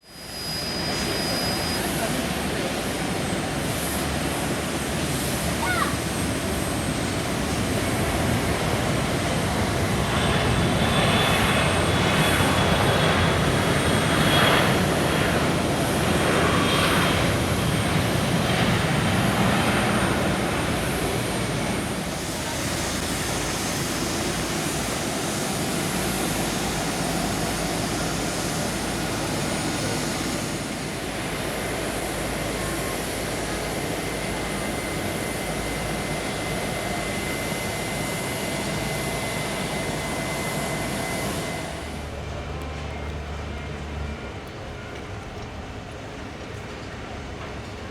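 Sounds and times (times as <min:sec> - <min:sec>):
jet engine rush with high whine: 0:00.0 - 0:44.9.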